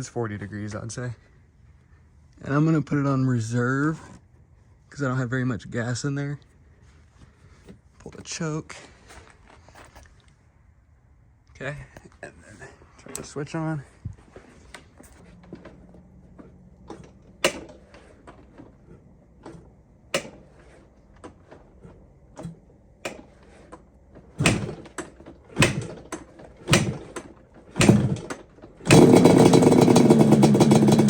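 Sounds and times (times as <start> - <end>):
motorcycle kick-start kicks: 14.4 - 31.0
two-stroke engine running loudly: 26.7 - 27.0, 27.8 - 31.0.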